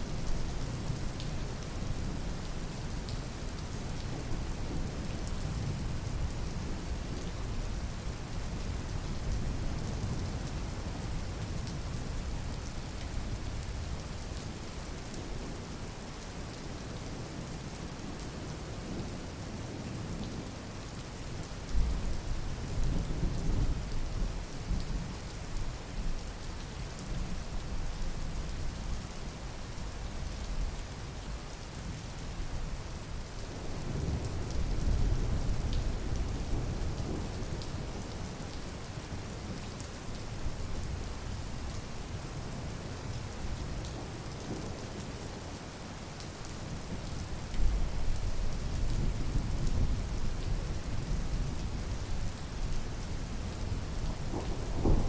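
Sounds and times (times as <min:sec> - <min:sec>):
steady rain falling: 0:00.0 - 0:55.0
low rolling thunder: 0:53.6 - 0:55.0.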